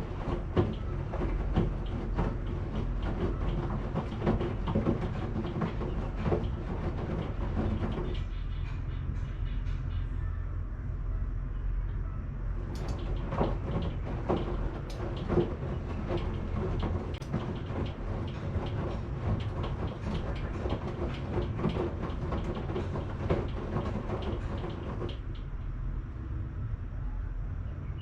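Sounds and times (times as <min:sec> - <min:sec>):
clicks and knocks from drum: 0:00.0 - 0:08.8, 0:12.6 - 0:25.5
washing machine humming: 0:00.0 - 0:09.5, 0:12.3 - 0:26.7.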